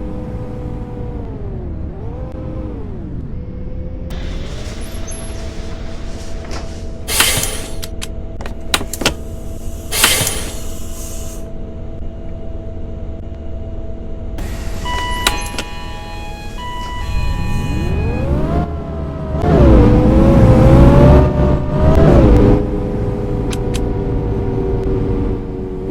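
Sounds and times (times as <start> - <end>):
bus diesel engine idling: 4.1 - 13.2, 13.8 - 18.3
loud air hisses: 7.0 - 7.9, 9.4 - 11.5
beeping tones: 14.4 - 18.8.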